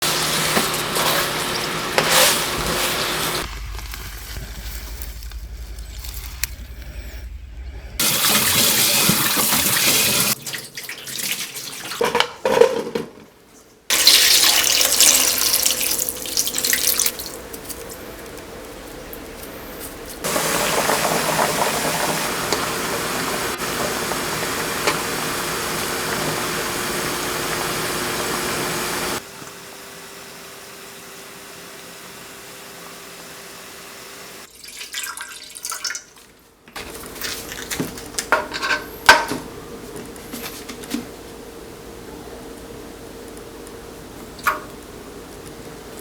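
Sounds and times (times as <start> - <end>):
tap water running hard: 0.0 - 3.5, 8.0 - 12.0, 13.9 - 17.7, 20.2 - 35.6
kitchenware clattering: 8.1 - 13.3, 36.8 - 39.6.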